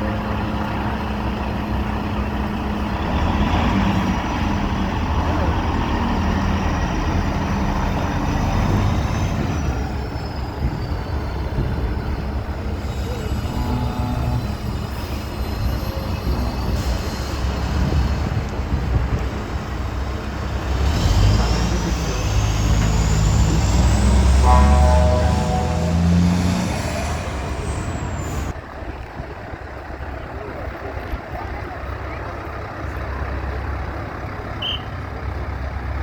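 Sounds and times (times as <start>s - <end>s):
truck diesel engines running: 0.0s - 36.0s
rising whine: 24.2s - 27.8s.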